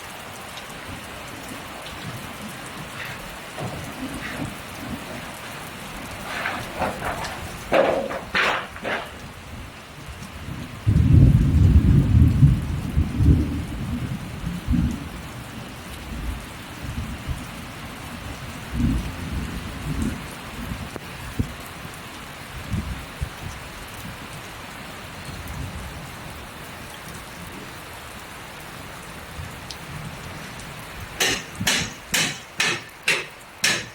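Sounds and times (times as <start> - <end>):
steady rain hissing: 0.0 - 33.9
thunder rumbling: 0.7 - 15.4
sharp knocks: 3.0 - 5.6, 6.2 - 9.2, 31.2 - 33.9.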